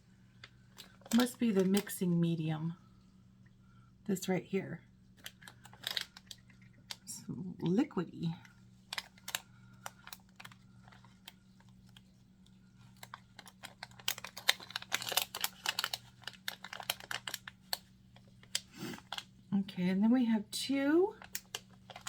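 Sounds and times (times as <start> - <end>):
steady low hum: 0.0 - 22.0
packaging rustling: 5.2 - 7.0, 12.8 - 19.3.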